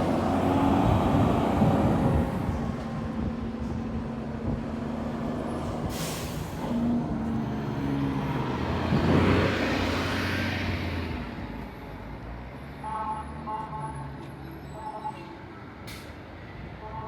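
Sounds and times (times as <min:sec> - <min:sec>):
air brakes hissing: 0:05.8 - 0:06.7.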